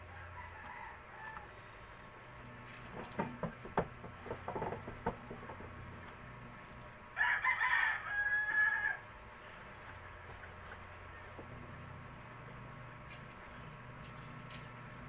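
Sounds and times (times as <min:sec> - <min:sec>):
rooster crowing: 0:00.1 - 0:01.8, 0:07.1 - 0:09.1.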